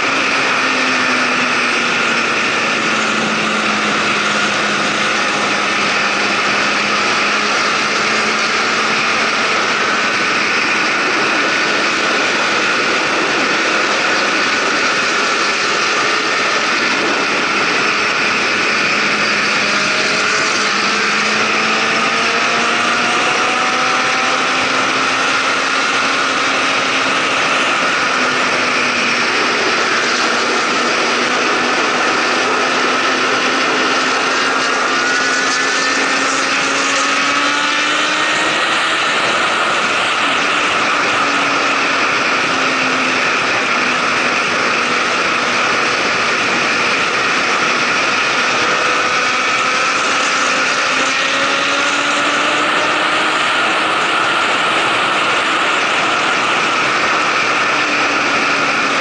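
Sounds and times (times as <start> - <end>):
motorcycle engine at speed: 0.0 - 59.0
wind rush: 0.0 - 59.0.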